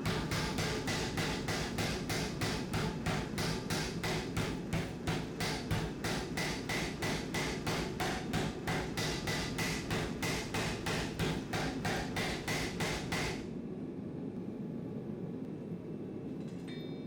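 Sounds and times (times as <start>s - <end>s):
hammer on anvil: 0.0s - 13.4s
steady low rumble: 0.0s - 16.5s.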